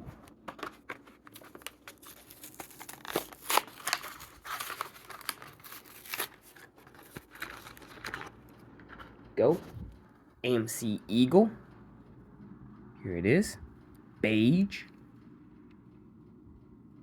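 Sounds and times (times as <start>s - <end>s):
plastic blister crinkling: 0.0s - 9.2s
card ripping: 0.5s - 8.3s.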